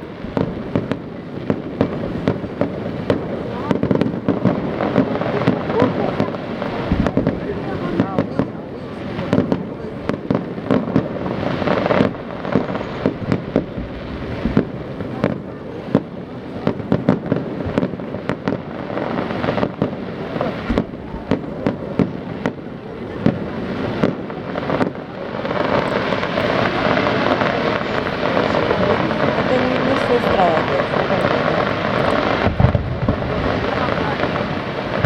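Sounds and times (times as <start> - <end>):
fireworks bangs and cracks: 0.0 - 35.0
background rumble: 9.2 - 17.8, 25.8 - 35.0.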